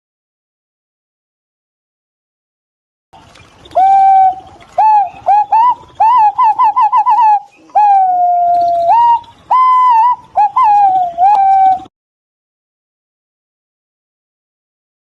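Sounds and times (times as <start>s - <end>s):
pigeons whistled calls: 3.6s - 11.9s.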